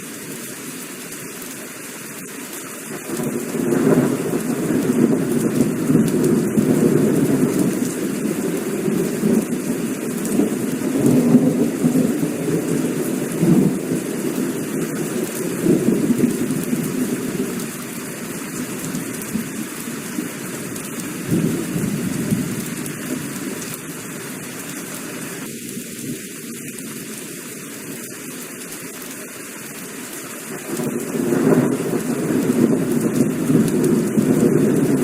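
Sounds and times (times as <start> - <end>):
heavy rain falling: 0.0 - 35.0
rolling thunder: 3.0 - 17.9, 20.8 - 23.7, 30.6 - 35.0.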